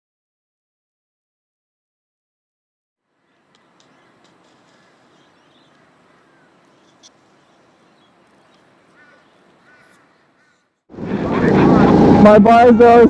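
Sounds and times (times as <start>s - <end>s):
faint background noise: 3.1s - 13.0s
click: 3.5s - 4.8s.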